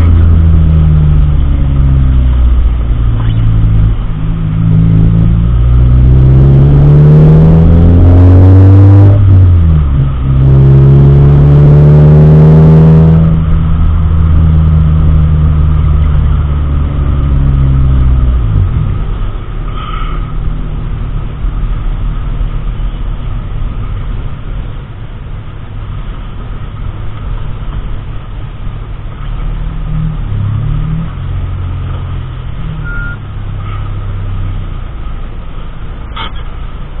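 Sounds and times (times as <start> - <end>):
car engine accelerating: 0.0 - 37.0.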